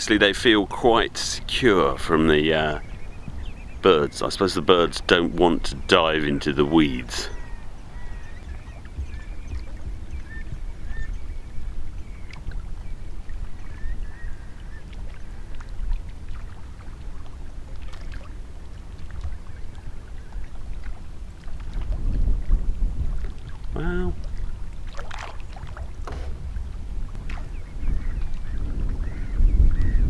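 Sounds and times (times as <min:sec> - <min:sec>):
water rumbling around boat: 0:00.0 - 0:30.0
sharp knocks: 0:26.0 - 0:26.6.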